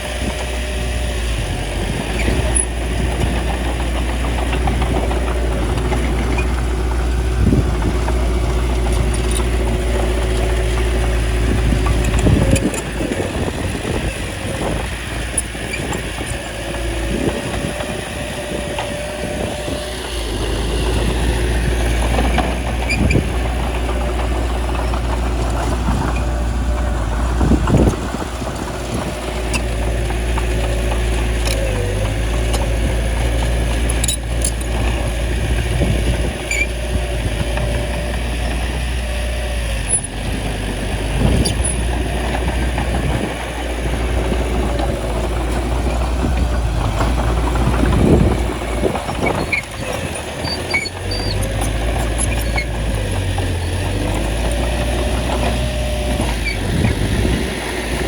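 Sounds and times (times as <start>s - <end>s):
bulldozer engine running: 0.0s - 58.0s.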